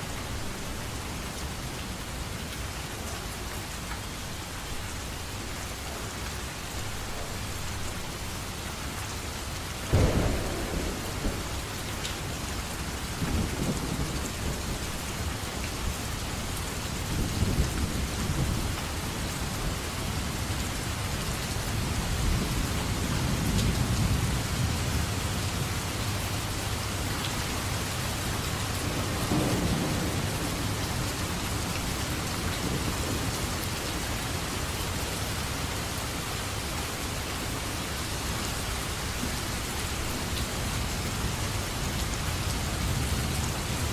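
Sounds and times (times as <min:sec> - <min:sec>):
heavy rain: 0:00.0 - 0:43.9
thunder rolling: 0:09.9 - 0:12.4.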